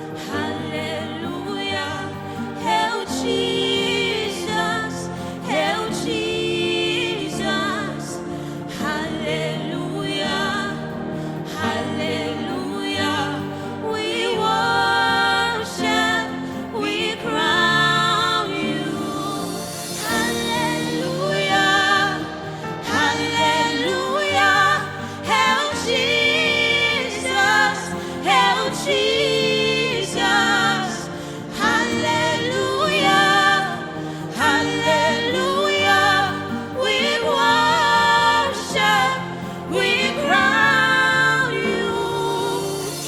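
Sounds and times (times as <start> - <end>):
musical accompaniment: 0.0 - 43.0
person singing gospel song: 0.0 - 43.0.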